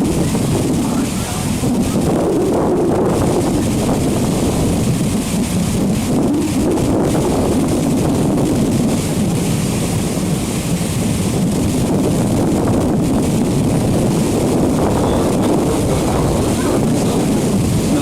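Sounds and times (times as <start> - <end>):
boat rumble and rush: 0.0 - 18.0
wind on microphone: 0.0 - 18.0.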